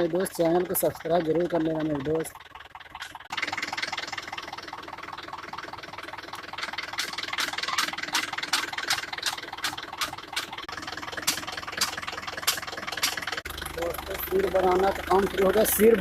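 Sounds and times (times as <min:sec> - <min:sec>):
tractor engine running: 0:00.0 - 0:16.0
sharp clacking: 0:06.4 - 0:13.5.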